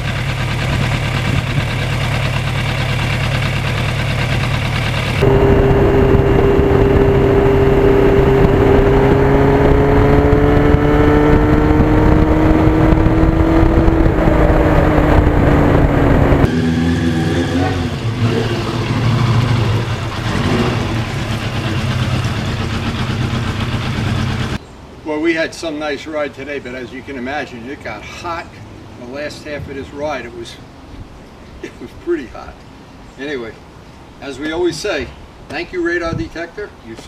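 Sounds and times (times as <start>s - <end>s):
motorcycle engine running: 0.0s - 16.6s, 18.8s - 24.6s.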